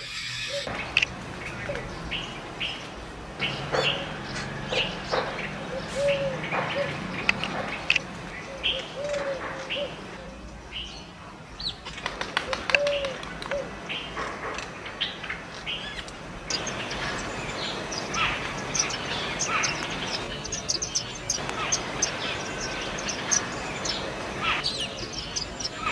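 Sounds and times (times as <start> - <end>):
low soft bird call: 0.0 - 0.7
small birds chirping: 0.0 - 25.9.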